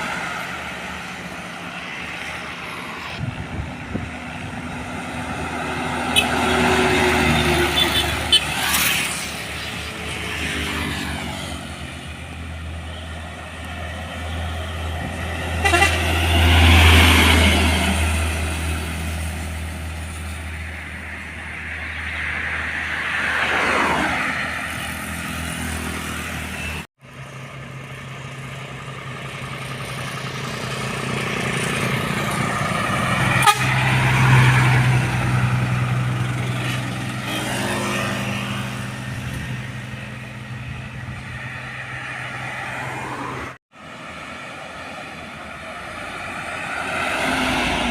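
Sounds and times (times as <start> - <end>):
trucks passing on road: 0.0 - 47.9
truck horns tooting: 5.8 - 9.0, 14.1 - 18.3, 32.9 - 34.8.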